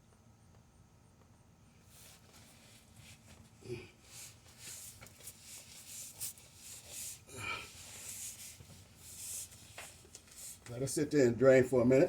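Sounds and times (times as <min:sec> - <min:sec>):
rustling and scuffing of hands: 0:01.8 - 0:10.9.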